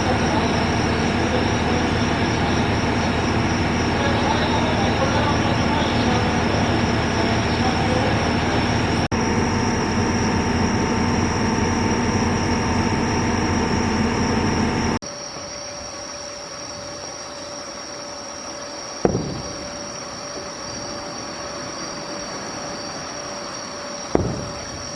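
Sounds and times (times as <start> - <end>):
steady hum: 0.0 - 15.0
train rumbling on board: 0.0 - 15.0.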